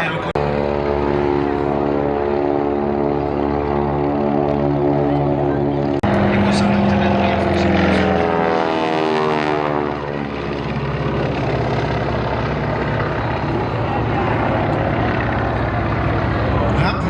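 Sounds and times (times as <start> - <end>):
aircraft engine flying past: 0.0 - 17.0.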